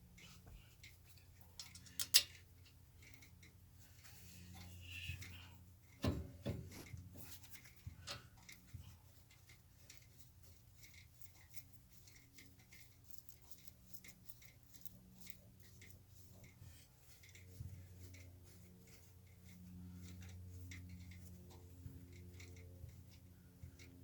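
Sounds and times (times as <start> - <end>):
hand tools knocking and clicking: 1.6 - 2.4.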